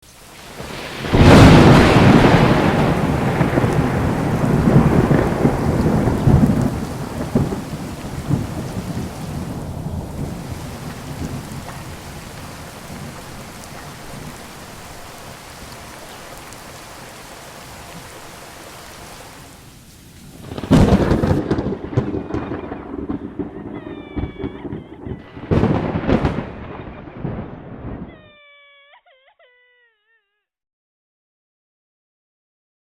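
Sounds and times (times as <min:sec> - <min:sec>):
steady rain: 0:00.0 - 0:28.2
thunderclap: 0:00.5 - 0:16.8, 0:20.4 - 0:28.2
high wavering cries: 0:21.8 - 0:25.6, 0:28.0 - 0:30.4.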